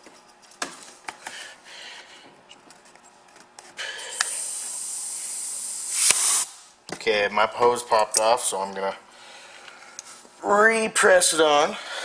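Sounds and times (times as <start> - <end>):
pneumatic engine air hiss: 4.0 - 6.7.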